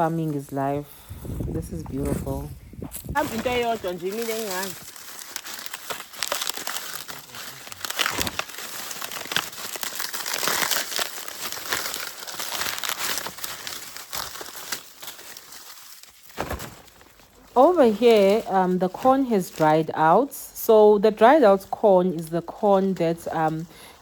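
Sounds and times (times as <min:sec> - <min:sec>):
dry leaves rustling and crackling: 0:03.1 - 0:20.0.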